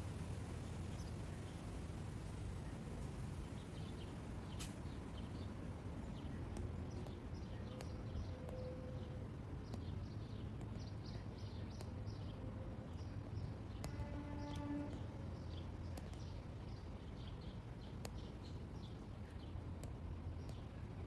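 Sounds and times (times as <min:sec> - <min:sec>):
low background rumble: 0:00.0 - 0:21.0
small birds chirping: 0:03.5 - 0:21.0
faint sharp ticks: 0:13.2 - 0:16.4.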